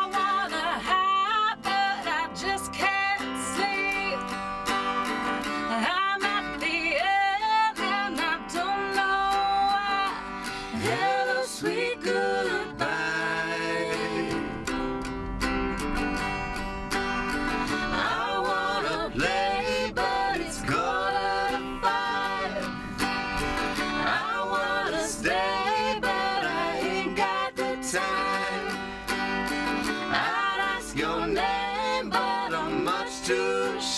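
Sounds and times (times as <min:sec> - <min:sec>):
strummed guitar: 0:00.0 - 0:33.9
person singing: 0:05.7 - 0:14.7, 0:23.7 - 0:28.8, 0:29.8 - 0:33.9.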